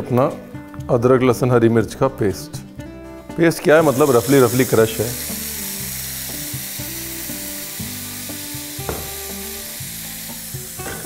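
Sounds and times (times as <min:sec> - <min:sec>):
soft background music: 0:00.0 - 0:11.0
paste sizzling in hot oil: 0:03.6 - 0:11.0.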